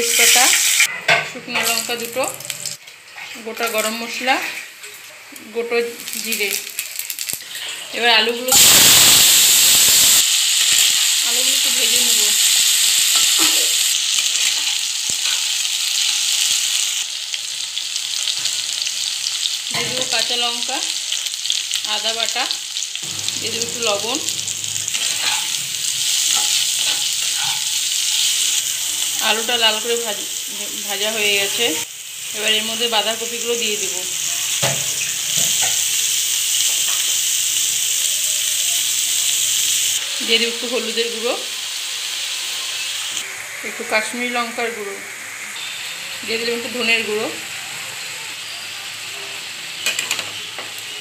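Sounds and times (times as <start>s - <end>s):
potatoes sizzling in oil: 0.0s - 51.0s
spatula scraping a pan: 24.8s - 28.4s.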